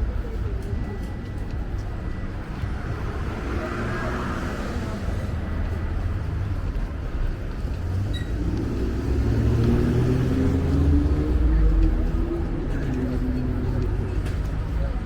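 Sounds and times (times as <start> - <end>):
rumble of traffic: 0.0 - 15.0
engine accelerating past: 8.4 - 11.8.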